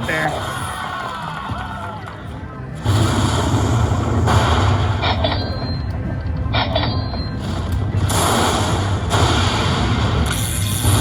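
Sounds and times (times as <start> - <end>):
slot machine electronic effects: 2.4 - 11.0
high chiming tones: 4.7 - 7.7.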